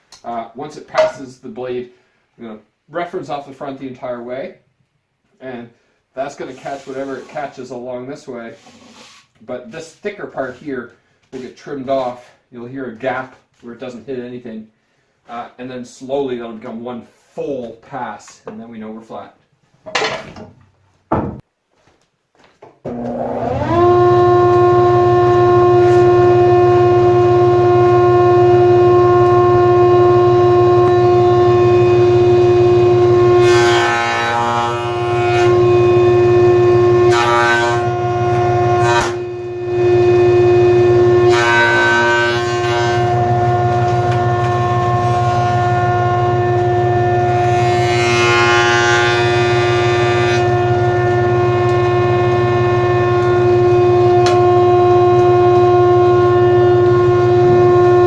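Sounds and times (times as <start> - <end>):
board cutting bursts: 22.9 - 58.0
jointer whine: 22.9 - 58.0.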